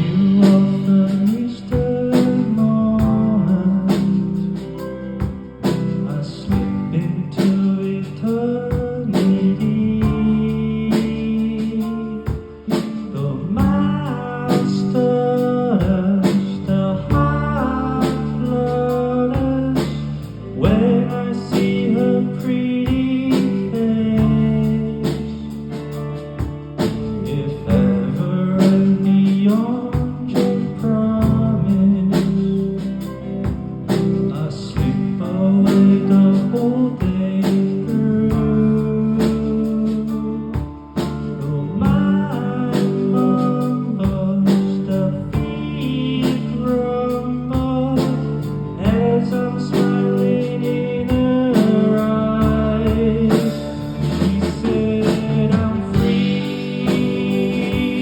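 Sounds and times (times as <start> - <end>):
band playing: 0.0 - 58.0
guitar lead with bending notes: 44.7 - 58.0.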